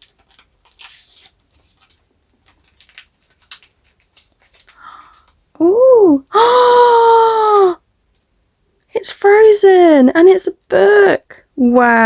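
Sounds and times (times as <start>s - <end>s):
plastic packaging crinkling and tearing: 0.0s - 5.6s.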